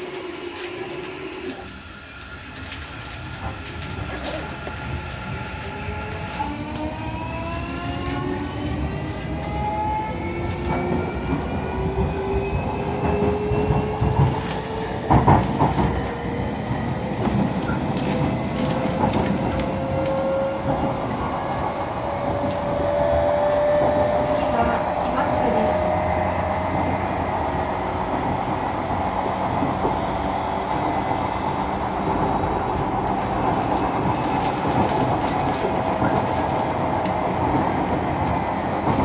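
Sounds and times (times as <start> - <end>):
wheels rumbling on rail: 0.0 - 39.0
rail joint clacks: 10.3 - 27.4.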